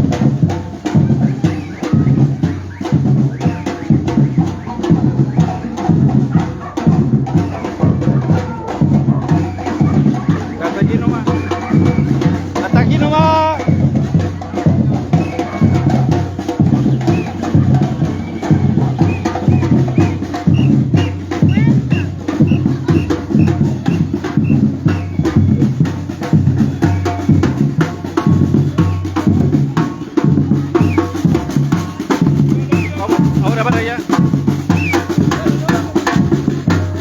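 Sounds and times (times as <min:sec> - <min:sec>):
bass drums beating: 0:00.0 - 0:37.0
snare drums beating: 0:00.0 - 0:37.0.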